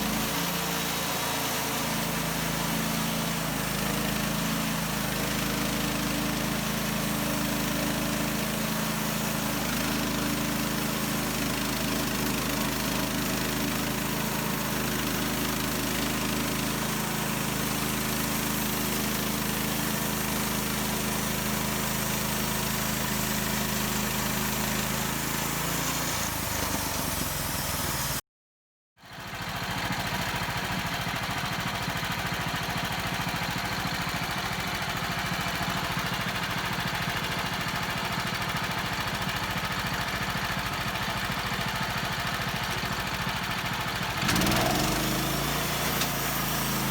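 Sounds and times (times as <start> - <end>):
saw cutting log: 0.0 - 28.2, 42.4 - 46.9
sawmill engine running: 0.0 - 28.2, 29.2 - 46.9.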